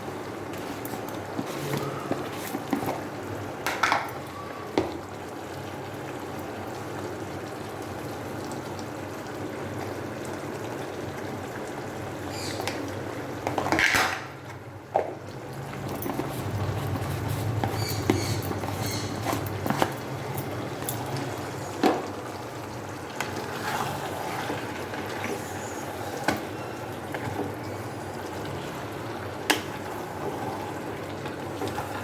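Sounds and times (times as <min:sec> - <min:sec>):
curry simmering in a pot: 0:00.0 - 0:32.0
utensil scraping a pot: 0:16.0 - 0:20.0, 0:23.4 - 0:26.4.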